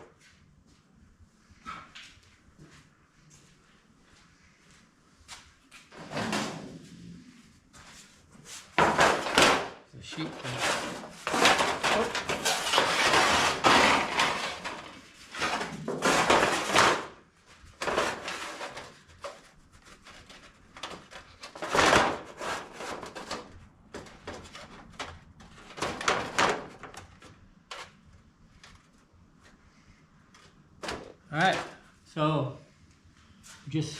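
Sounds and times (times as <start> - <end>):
sheet of material rustling: 5.9 - 23.6
short scrapes or knocks: 10.3 - 17.1.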